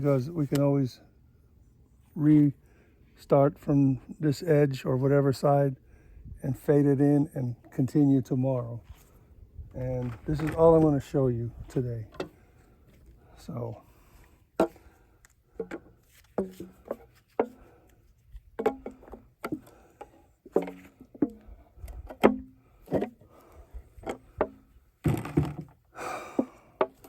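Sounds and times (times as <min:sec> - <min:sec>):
scraping and rustling: 0:09.8 - 0:11.2.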